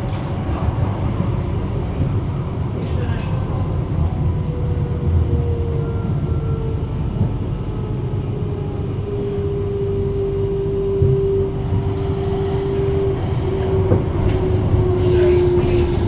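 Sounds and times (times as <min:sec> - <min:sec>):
tram running rumble: 0:00.0 - 0:16.0
thin tram whine: 0:10.4 - 0:16.0.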